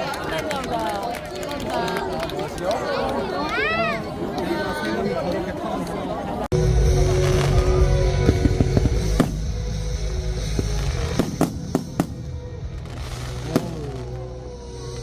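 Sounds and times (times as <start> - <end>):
loud music: 6.5 - 15.0
fireworks bursting: 7.2 - 15.0.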